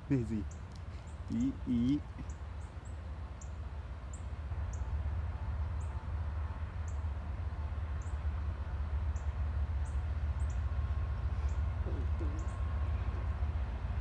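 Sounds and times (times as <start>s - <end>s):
distant freight train rumble: 0.0s - 14.0s
bird chirps: 0.2s - 4.9s.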